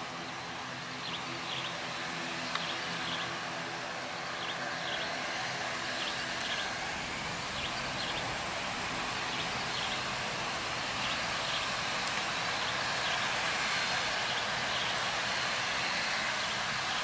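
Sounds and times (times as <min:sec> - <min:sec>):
distant jet airliner engine: 0:00.0 - 0:17.0.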